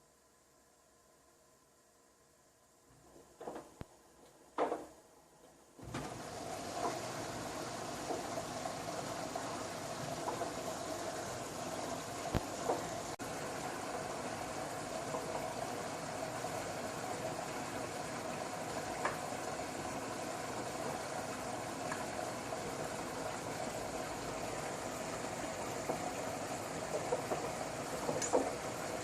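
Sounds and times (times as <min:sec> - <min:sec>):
washing machine motor hum: 0:02.2 - 0:29.0
wash churning: 0:05.8 - 0:29.0.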